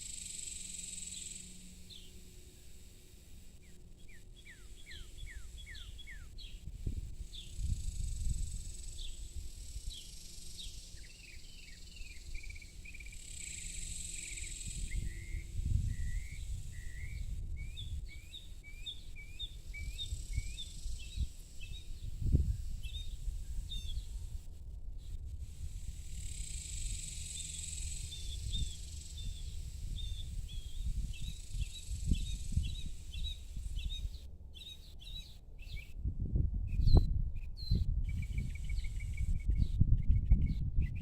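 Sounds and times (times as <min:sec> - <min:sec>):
high insect buzz: 0:00.0 - 0:35.1
bird chirping: 0:03.6 - 0:06.6, 0:26.2 - 0:36.0, 0:36.7 - 0:41.0.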